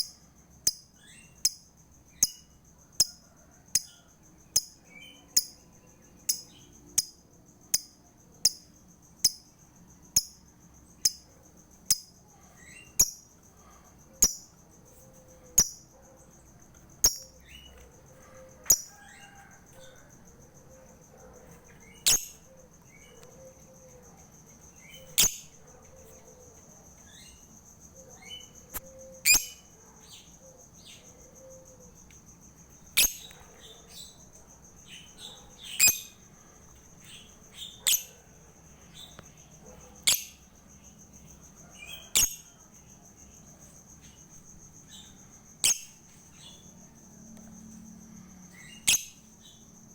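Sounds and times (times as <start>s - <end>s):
lovebird chirping: 17.0s - 17.8s, 18.7s - 19.3s, 21.8s - 23.6s, 24.8s - 26.2s, 28.2s - 30.2s, 33.0s - 34.2s, 35.0s - 36.2s, 37.0s - 38.1s, 40.0s - 40.4s, 41.8s - 42.4s, 45.0s - 46.6s, 48.6s - 49.2s.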